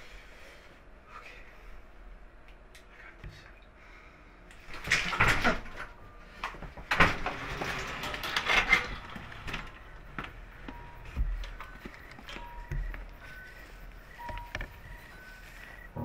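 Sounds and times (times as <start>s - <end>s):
footsteps and clothing rustles: 6.2s - 16.0s.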